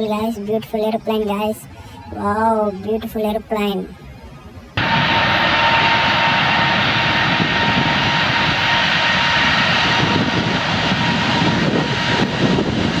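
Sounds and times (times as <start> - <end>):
jet-like engine rush with whine: 4.7 - 13.0.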